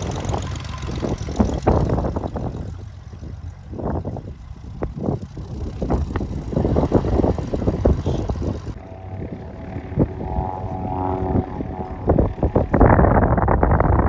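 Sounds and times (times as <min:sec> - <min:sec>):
propeller airplane engine hum: 0:00.0 - 0:14.0
wind buffeting microphone: 0:00.0 - 0:14.0.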